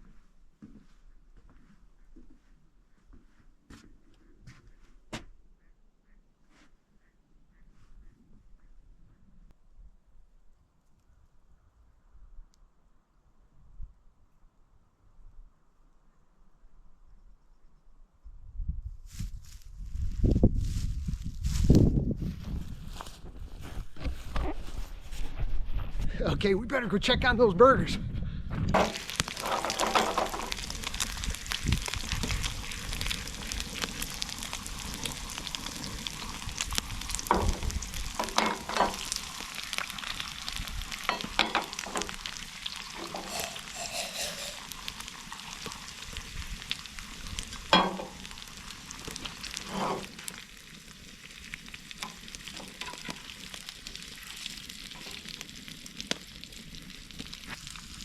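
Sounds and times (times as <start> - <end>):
burgers sizzling on a grill: 28.8 - 58.0.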